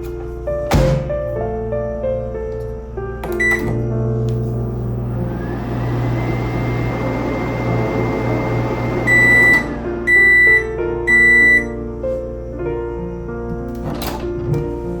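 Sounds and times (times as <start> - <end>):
microwave oven humming: 3.2 - 12.0
microwave beeps: 3.3 - 3.9, 6.0 - 11.8.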